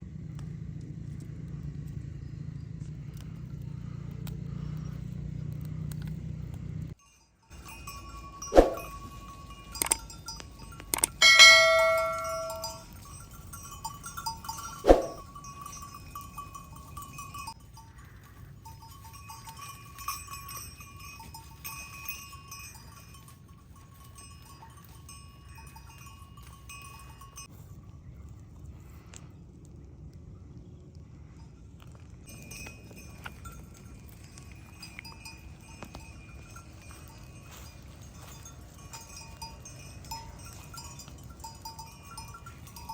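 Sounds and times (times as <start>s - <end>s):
faint bell tinkling: 6.9s - 28.3s, 31.2s - 42.9s
metal bells ringing: 7.0s - 27.5s, 32.3s - 42.9s.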